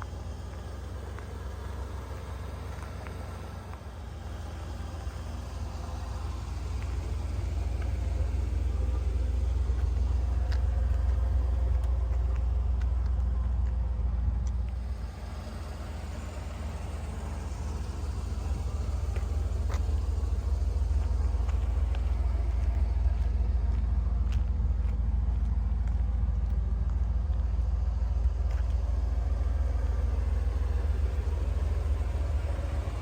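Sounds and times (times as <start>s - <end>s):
car engine rumbling: 0.0s - 33.0s.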